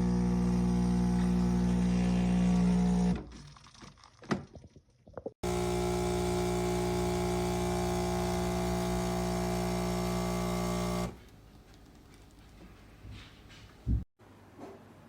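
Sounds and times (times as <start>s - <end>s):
machine humming: 5.4s - 11.2s.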